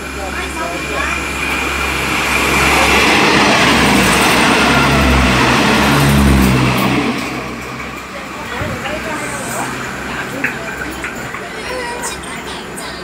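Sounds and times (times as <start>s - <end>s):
diesel engine low hum: 0.0s - 13.0s
train wheels rushing on rail: 0.0s - 13.0s.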